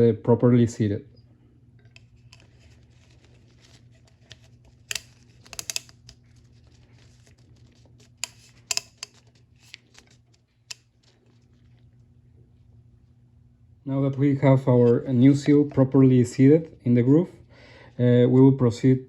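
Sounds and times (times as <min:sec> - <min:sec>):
faint low hum: 0:00.0 - 0:19.0
hands handling plastic parts: 0:01.9 - 0:11.2.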